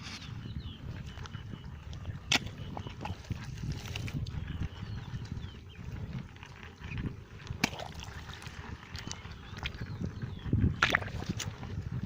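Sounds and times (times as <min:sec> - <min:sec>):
wet mud sloshing and squelching: 0:02.2 - 0:04.4, 0:07.5 - 0:09.8, 0:10.6 - 0:11.8.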